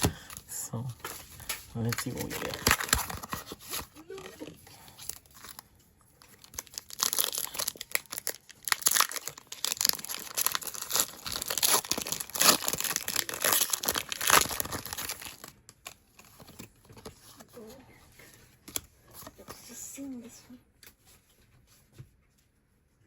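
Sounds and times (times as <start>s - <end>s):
foil wrapper tearing and crinkling: 1.8s - 5.6s, 6.2s - 16.7s.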